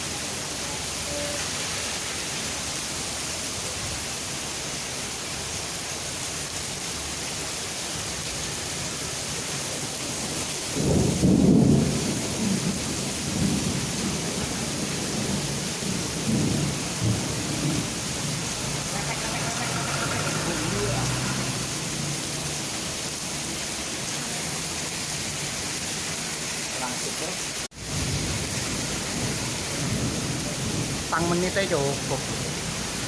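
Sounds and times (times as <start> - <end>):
steady rain hissing: 0.0 - 33.0
thunder rumbling: 10.8 - 22.8, 27.8 - 33.0.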